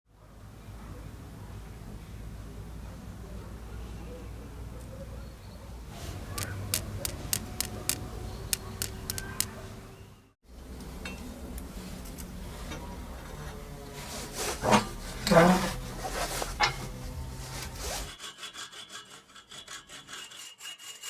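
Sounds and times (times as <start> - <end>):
sharp clicks of small objects: 6.3 - 9.6.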